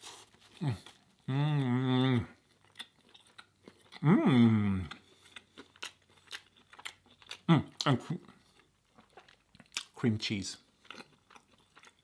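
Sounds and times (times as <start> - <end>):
man chewing: 0.0 - 10.0, 10.6 - 12.0
man humming mmm: 0.6 - 2.4, 4.0 - 5.0.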